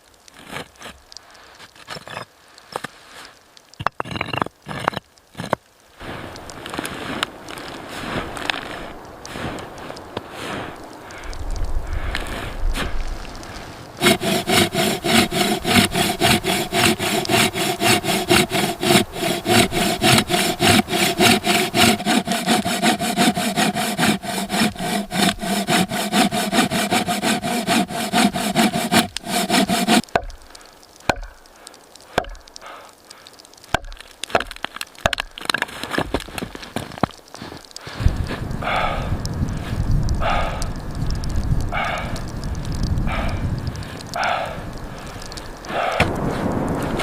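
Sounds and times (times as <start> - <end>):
hand saw cutting wood: 14.0 - 30.4.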